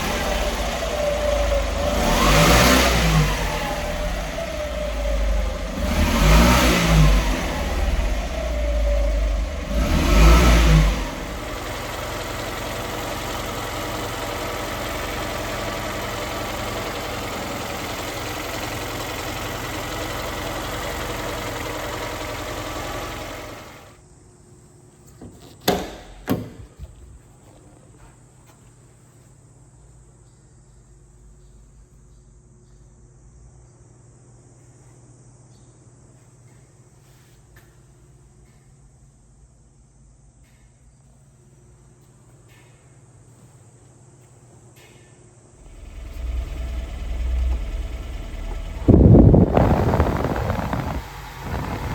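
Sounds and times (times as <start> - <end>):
small truck engine revving and idling: 0.0 - 24.0, 45.6 - 51.9.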